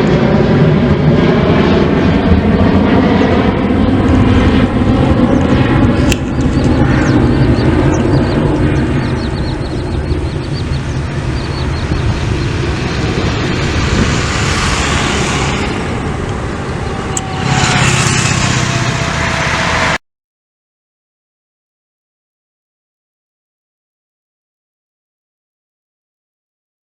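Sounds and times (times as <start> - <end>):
jet engines roaring: 0.0 - 20.0.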